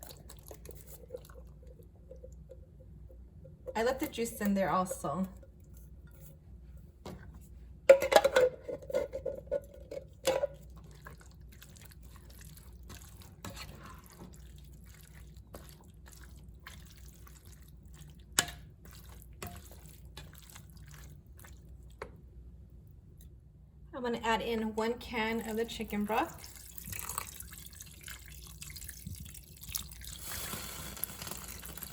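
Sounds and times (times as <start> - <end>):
beans poured from metal can: 30.2 - 31.9.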